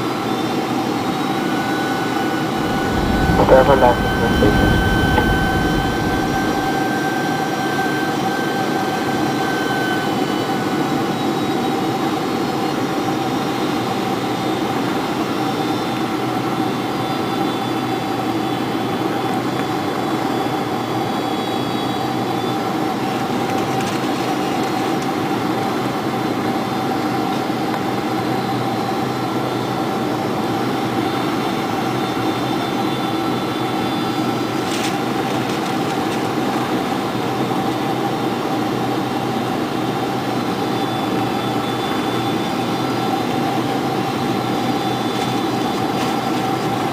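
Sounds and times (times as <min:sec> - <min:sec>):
jet engine high whine: 0:00.0 - 0:13.2, 0:23.8 - 0:46.9
airplane cabin engine rush: 0:01.5 - 0:07.4.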